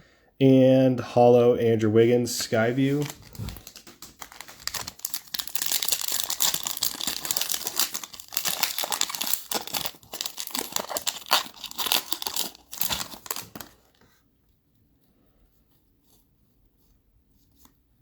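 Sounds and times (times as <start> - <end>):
plastic wrapper crinkling and tearing: 2.8 - 14.1.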